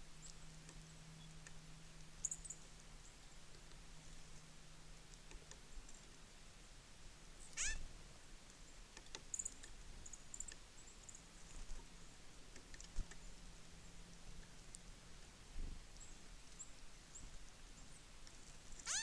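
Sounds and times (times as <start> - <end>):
harsh bird call sliding down: 7.6 - 7.8.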